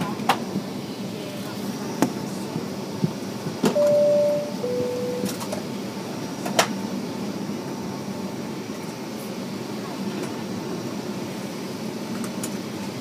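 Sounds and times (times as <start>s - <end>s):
cabin air and engine hum: 0.0s - 13.0s
two-tone electronic chime: 3.8s - 5.4s.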